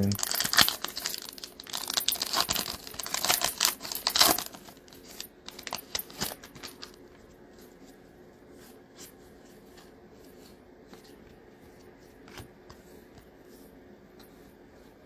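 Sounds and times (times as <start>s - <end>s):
foil wrapper tearing and crinkling: 0.2s - 4.6s.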